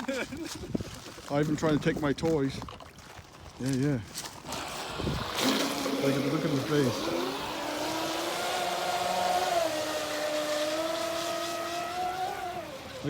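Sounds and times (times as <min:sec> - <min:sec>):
electric motor whine: 0:04.5 - 0:13.0.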